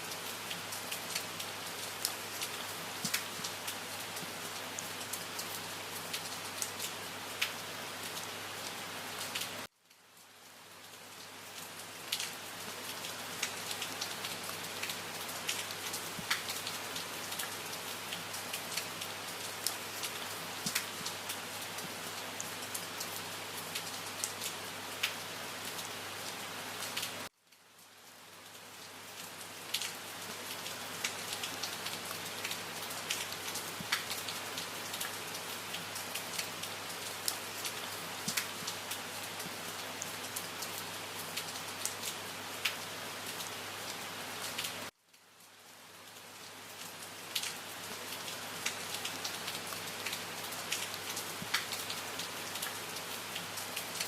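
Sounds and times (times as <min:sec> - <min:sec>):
steady rain falling: 0:00.0 - 0:54.0
raindrops ticking: 0:03.0 - 0:03.3, 0:38.2 - 0:38.8, 0:48.6 - 0:52.0.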